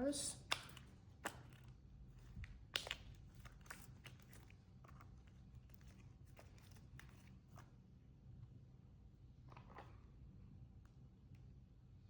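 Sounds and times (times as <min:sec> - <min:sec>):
slime squishing and clicking: 0:02.4 - 0:05.1.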